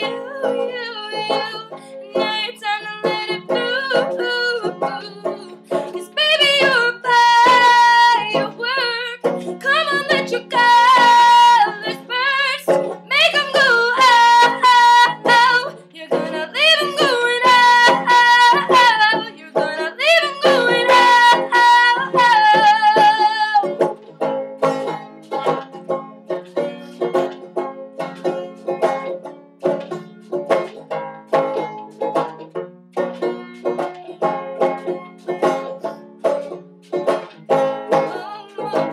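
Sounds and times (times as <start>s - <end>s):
person singing: 0.0s - 23.8s, 25.3s - 25.8s, 37.9s - 38.9s
banjo picking: 0.0s - 38.9s.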